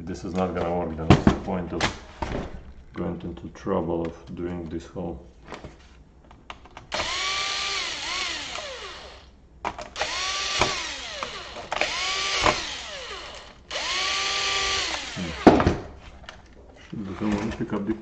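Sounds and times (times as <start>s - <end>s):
electric screwdriver whining: 6.9s - 9.3s, 10.0s - 15.6s.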